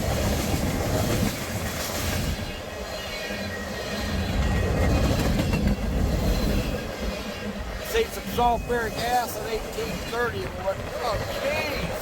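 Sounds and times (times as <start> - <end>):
wheels clattering over rails: 0.0 - 12.0
faint wheel squeal: 5.8 - 10.5.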